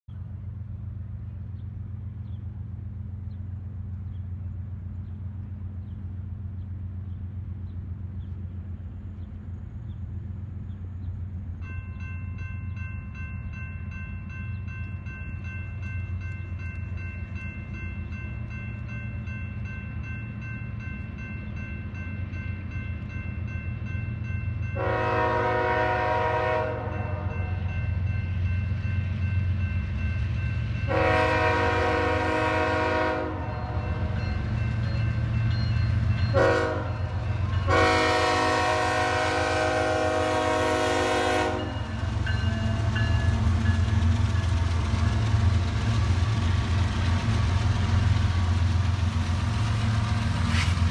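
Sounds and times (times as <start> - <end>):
diesel locomotive rumbling: 0.1 - 50.9
train air horn blast: 24.8 - 27.6, 30.9 - 34.0, 36.3 - 41.9.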